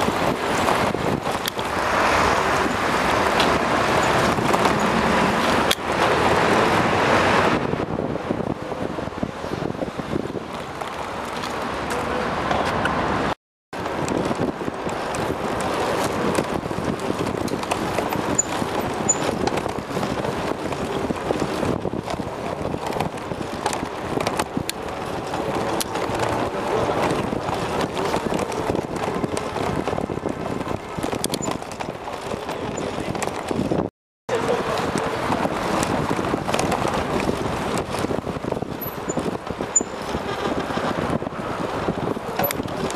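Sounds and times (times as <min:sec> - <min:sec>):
street traffic noise: 0:00.0 - 0:42.9
wind rushing over microphone: 0:00.0 - 0:42.9
bike knocks and rattles: 0:02.6 - 0:06.2, 0:13.8 - 0:42.9.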